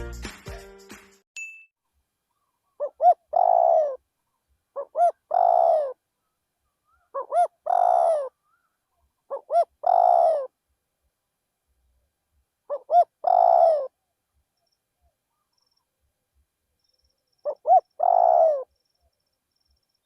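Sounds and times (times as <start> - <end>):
dove cooing: 2.4 - 4.0, 4.8 - 6.0, 6.8 - 8.7, 9.3 - 10.5, 12.7 - 14.0, 17.4 - 18.7.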